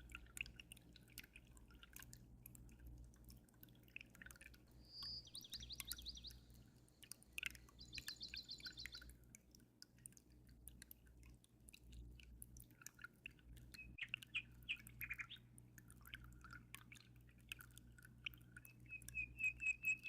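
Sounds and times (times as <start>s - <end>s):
low steady hum: 0.0s - 20.0s
water dripping and trickling: 0.0s - 20.0s
small bird singing: 4.7s - 9.1s, 13.8s - 15.5s, 18.7s - 20.0s.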